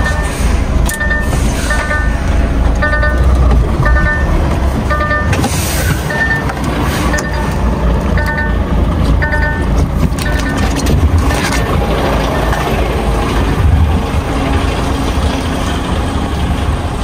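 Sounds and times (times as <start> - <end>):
electronic beeps: 0.0 - 11.6
diesel truck engine idling: 0.0 - 17.0.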